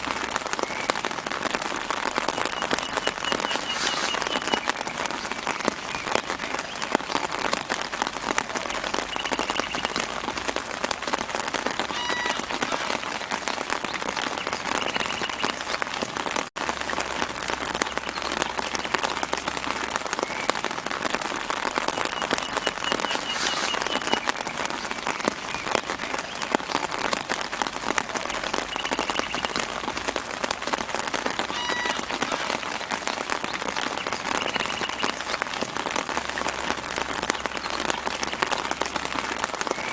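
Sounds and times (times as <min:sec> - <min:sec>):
rain pattering on leaves: 0:00.0 - 0:39.9
faint bird chirps: 0:02.4 - 0:04.9, 0:22.0 - 0:24.4.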